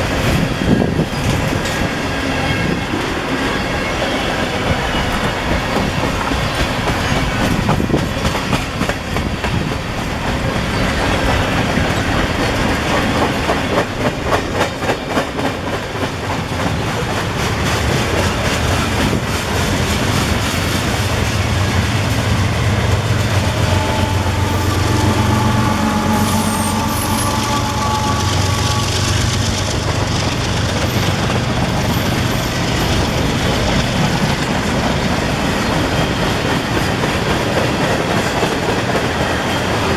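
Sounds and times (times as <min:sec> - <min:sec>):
freight train wheels clacking: 0:00.0 - 0:39.9.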